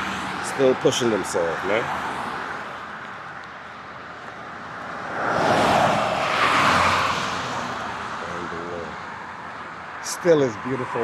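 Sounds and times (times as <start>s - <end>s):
vehicle passing by: 4.8s - 8.9s.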